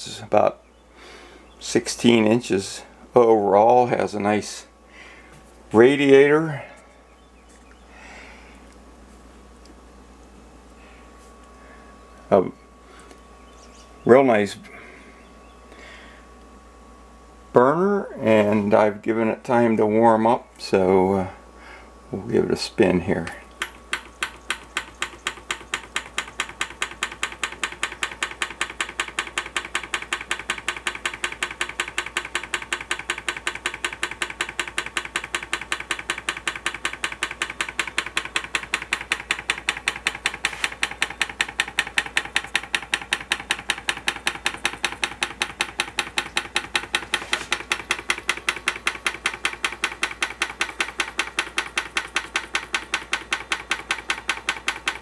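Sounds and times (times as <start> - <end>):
hot air engine clicking: 23.2 - 55.0.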